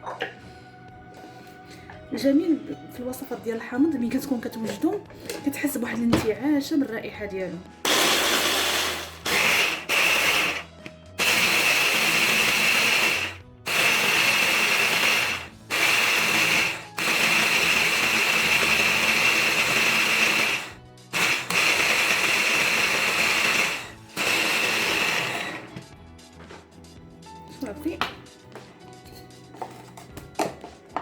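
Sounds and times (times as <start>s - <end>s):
electric blender grinding: 7.8s - 25.9s.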